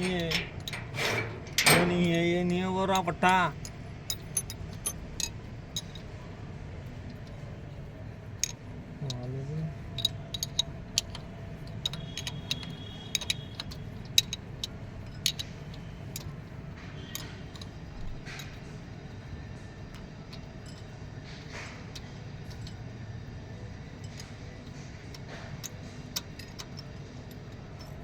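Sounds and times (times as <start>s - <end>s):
metallic clinks of hand tools: 0.0s - 6.0s
low steady hum: 0.0s - 28.0s.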